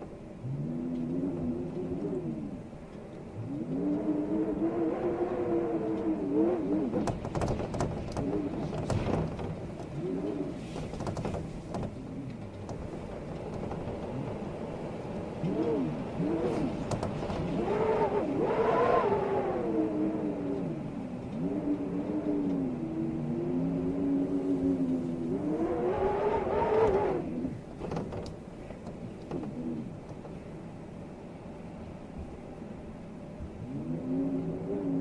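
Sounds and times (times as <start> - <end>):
storm wind howling: 0.0 - 35.0
sharp clicks and rattles: 6.7 - 14.6, 16.8 - 17.6, 27.6 - 30.4.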